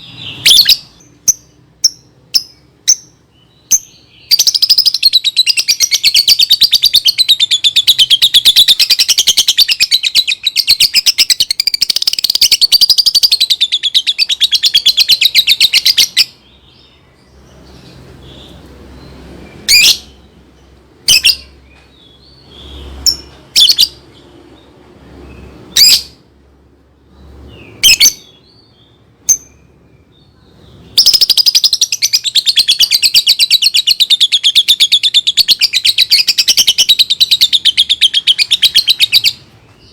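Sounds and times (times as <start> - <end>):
lovebird chattering trill: 0.0 - 18.6, 30.7 - 39.9
sharp bird chirps: 0.0 - 26.2, 27.1 - 39.9.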